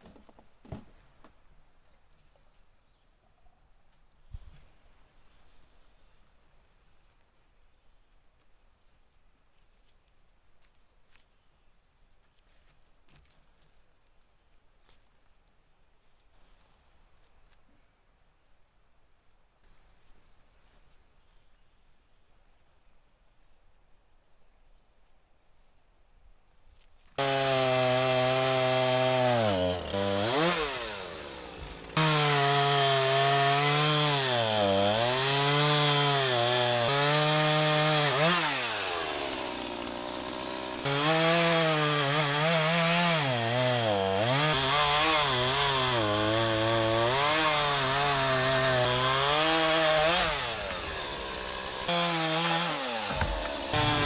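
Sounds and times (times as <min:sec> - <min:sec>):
chainsaw cutting wood: 0:27.2 - 0:54.0.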